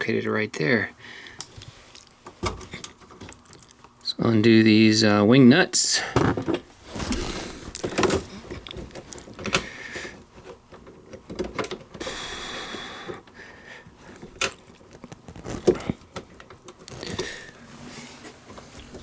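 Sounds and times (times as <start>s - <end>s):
metal clicks and knocks: 10.7s - 12.0s.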